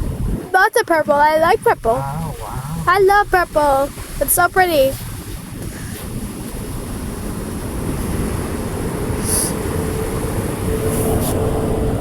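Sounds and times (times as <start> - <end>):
car wash water and machinery: 0.0 - 12.0
short hiss: 9.2 - 9.6.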